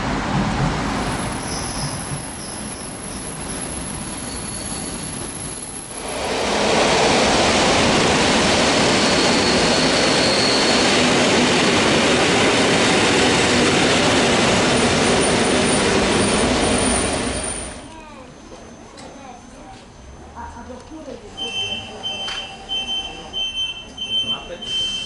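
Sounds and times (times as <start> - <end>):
train wheels rushing on rail: 0.0 - 17.9.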